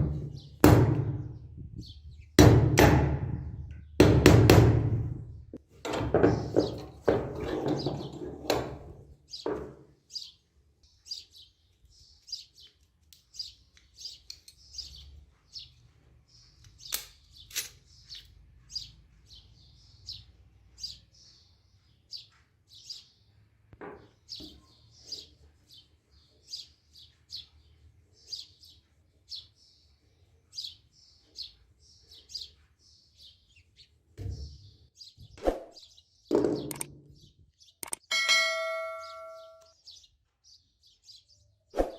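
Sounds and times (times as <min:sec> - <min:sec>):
small birds chirping: 0:00.0 - 0:02.4, 0:06.2 - 0:41.9
knocks: 0:05.8 - 0:09.8.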